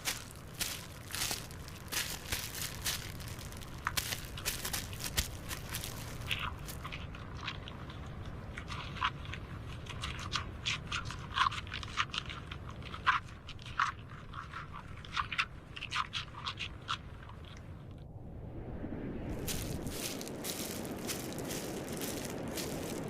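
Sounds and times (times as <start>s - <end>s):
steady low rumble: 0.0s - 7.2s, 17.9s - 23.0s
irregular crunching and crackling: 0.0s - 18.0s, 19.3s - 23.0s.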